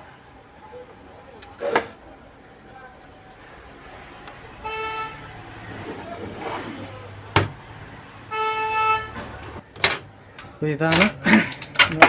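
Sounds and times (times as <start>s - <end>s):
vehicle horn honking: 4.5s - 5.7s, 8.2s - 9.4s.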